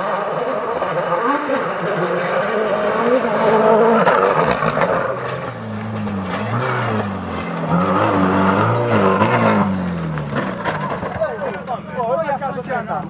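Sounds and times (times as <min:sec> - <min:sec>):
rally car engine at full throttle: 0:00.0 - 0:13.0.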